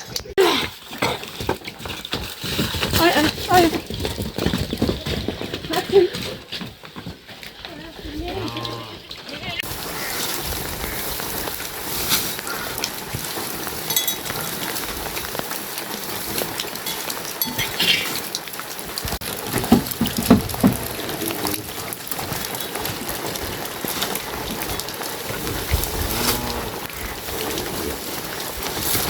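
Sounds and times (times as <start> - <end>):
steady rain falling: 7.4 - 29.0.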